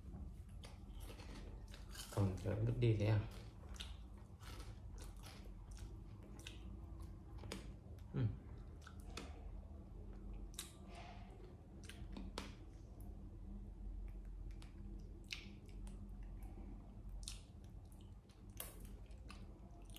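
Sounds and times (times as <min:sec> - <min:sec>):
potato chips being chewed: 0:00.4 - 0:07.8.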